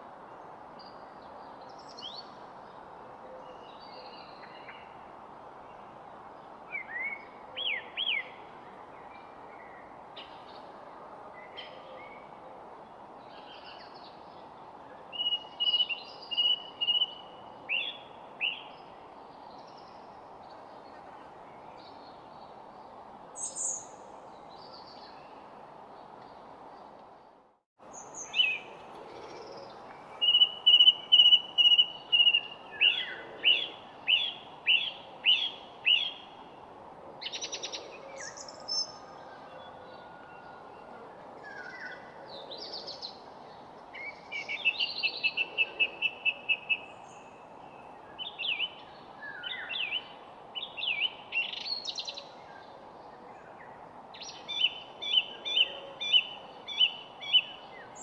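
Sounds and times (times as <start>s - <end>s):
steady background hiss: 0.0s - 39.4s
songbirds singing trills: 27.9s - 36.4s, 37.2s - 58.0s.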